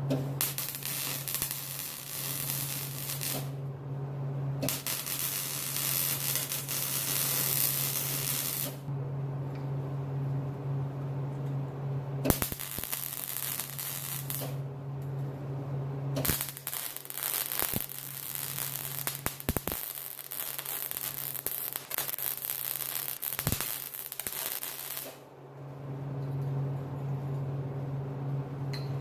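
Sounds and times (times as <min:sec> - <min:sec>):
welding arc crackling: 0:00.0 - 0:03.6, 0:04.6 - 0:08.9, 0:12.3 - 0:14.6, 0:16.2 - 0:25.2
welder hum: 0:00.0 - 0:08.9, 0:12.2 - 0:14.7, 0:16.2 - 0:25.3.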